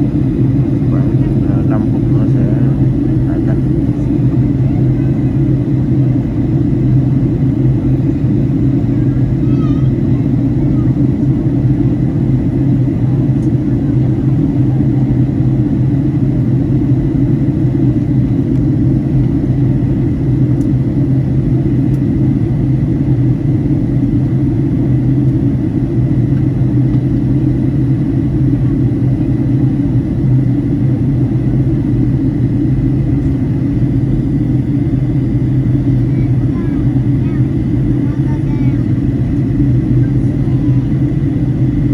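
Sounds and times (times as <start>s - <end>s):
airliner engine and airflow drone: 0.0s - 41.9s.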